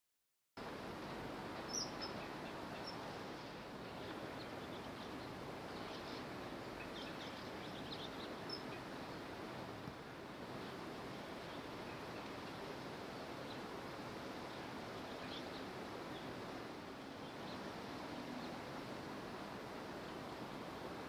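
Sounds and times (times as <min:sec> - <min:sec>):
outdoor background noise: 0:00.6 - 0:21.0
high bird chirps: 0:01.7 - 0:03.0.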